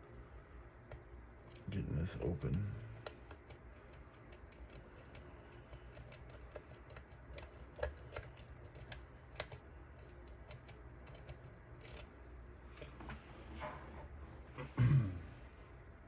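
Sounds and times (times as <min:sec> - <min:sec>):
lock pick clicks and scratches: 0:02.8 - 0:12.2.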